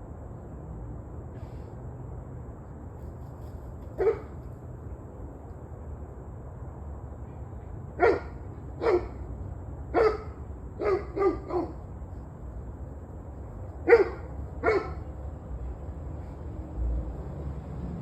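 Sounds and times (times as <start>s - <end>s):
dog barking: 4.0s - 4.4s, 8.0s - 9.2s, 9.9s - 11.8s, 13.9s - 15.0s.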